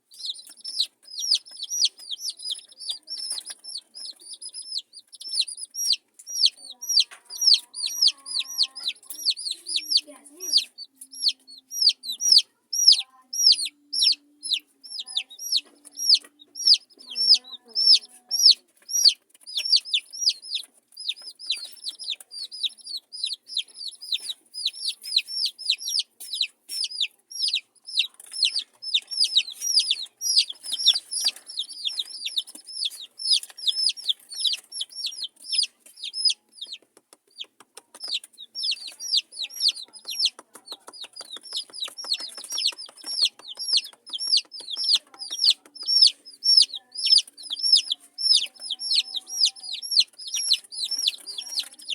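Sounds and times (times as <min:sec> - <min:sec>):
baby chicks peeping: 0:00.0 - 0:51.9.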